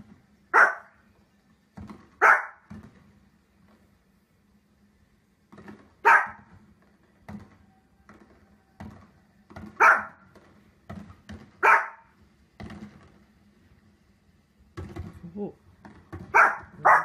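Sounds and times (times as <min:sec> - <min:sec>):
small dog barking: 0:00.5 - 0:01.0, 0:02.2 - 0:02.7, 0:06.0 - 0:06.5, 0:09.8 - 0:10.2, 0:11.6 - 0:12.1, 0:16.3 - 0:17.0.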